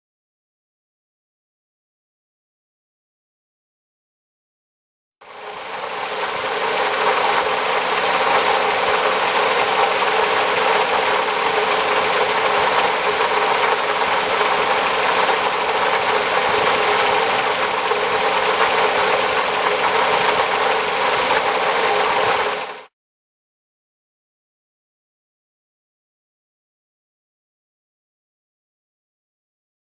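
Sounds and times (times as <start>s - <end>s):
car engine running: 5.2s - 22.9s
water pump metallic rattle: 5.6s - 22.8s.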